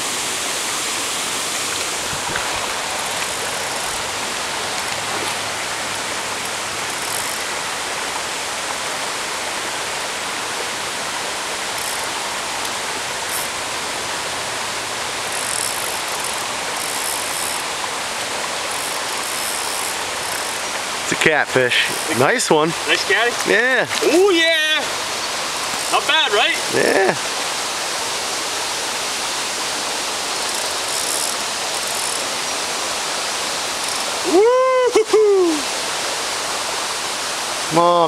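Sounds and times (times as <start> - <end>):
river water rushing over rocks: 0.0 - 38.0.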